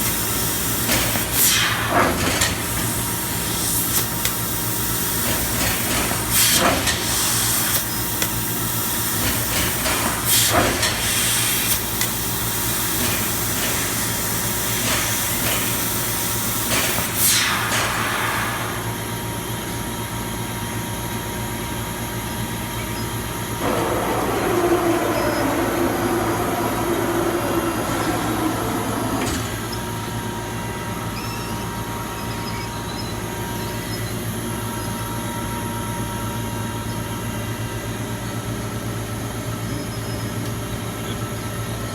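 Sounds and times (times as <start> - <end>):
loud rushing: 23.6 - 30.4
laser cutter hum with hiss: 23.6 - 30.6.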